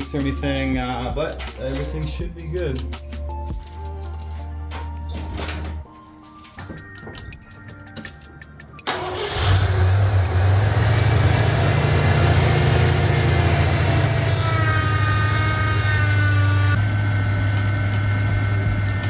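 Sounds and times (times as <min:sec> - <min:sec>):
car engine cranking and idling: 0:08.8 - 0:19.0
thin pump whine: 0:12.0 - 0:19.0.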